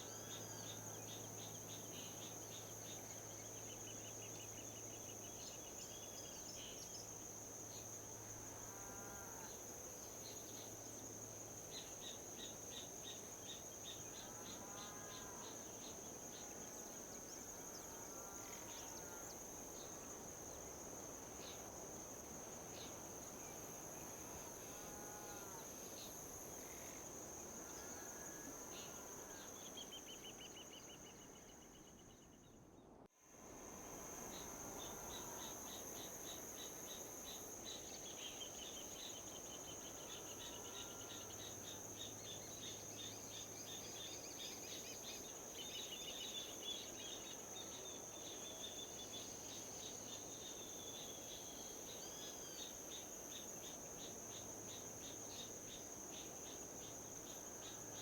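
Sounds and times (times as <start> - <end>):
crickets trilling: 0.0 - 32.6, 33.4 - 58.0
soft wind hiss: 16.0 - 40.4.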